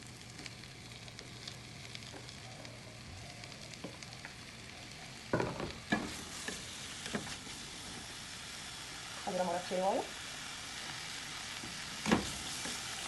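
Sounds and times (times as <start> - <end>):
mushrooms sizzling in a frying pan: 0.0 - 13.0.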